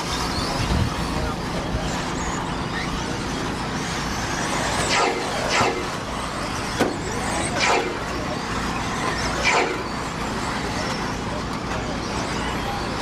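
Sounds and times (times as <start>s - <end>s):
rc truck motors whining: 0.0s - 13.0s
track noise: 1.2s - 11.6s.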